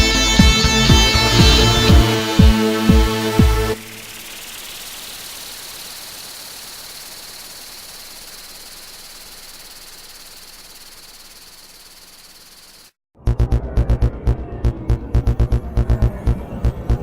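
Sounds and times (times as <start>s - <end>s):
steady hiss: 3.1s - 13.0s.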